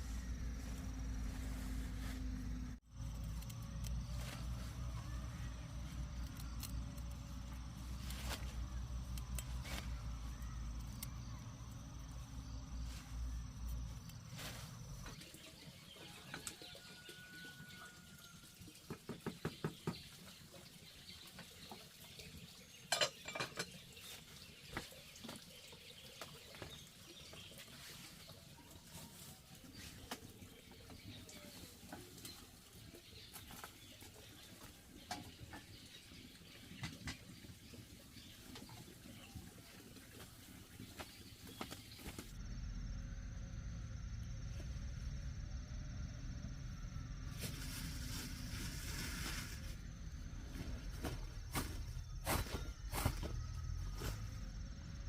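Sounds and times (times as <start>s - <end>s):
kitchen clinks and knocks: 22.9s - 23.9s.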